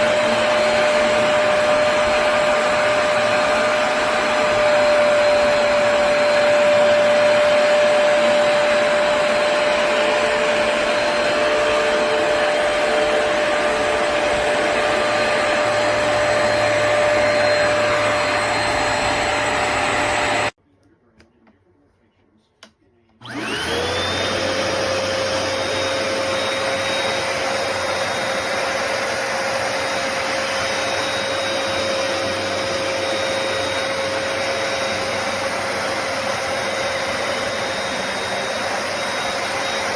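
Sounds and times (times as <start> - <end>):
carpet cleaner motor whining: 0.0 - 20.6, 23.2 - 39.9.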